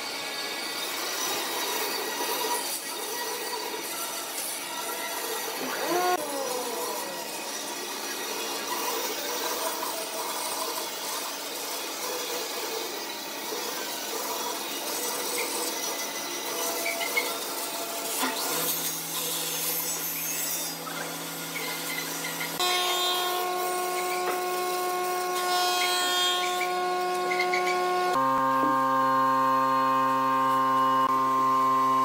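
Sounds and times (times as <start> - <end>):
tool scraping wood: 18.2 - 28.8
motor hum: 20.8 - 32.0.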